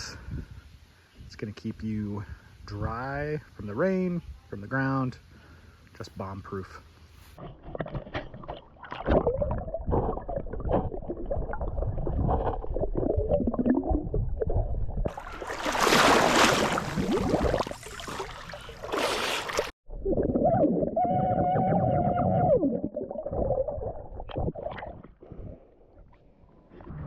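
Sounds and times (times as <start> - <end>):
water splashing and gurgling: 7.4 - 26.1
hissing splash: 15.1 - 19.8.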